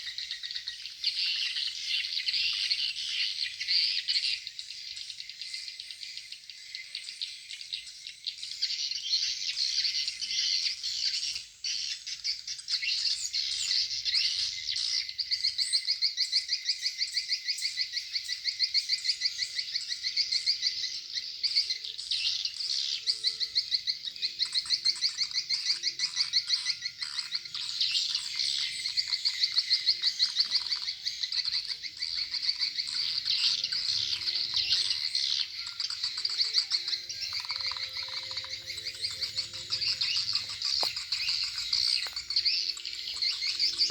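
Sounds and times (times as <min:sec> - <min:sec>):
swiftlets chirping trills: 0:27.4 - 0:43.9.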